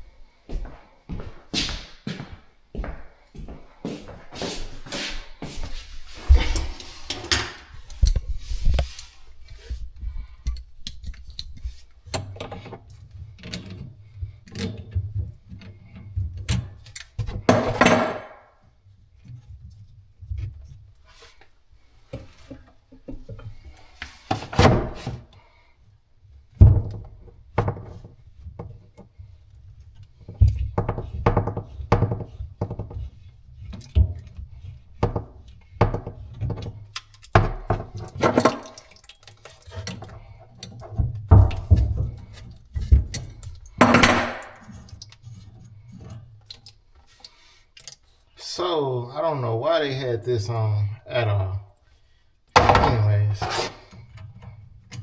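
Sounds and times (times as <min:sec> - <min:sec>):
scraping noises: 0:03.9 - 0:09.9, 0:52.9 - 0:54.1
plumbing tools knocking: 0:17.2 - 0:18.4, 0:35.0 - 0:44.7, 0:52.6 - 0:53.7.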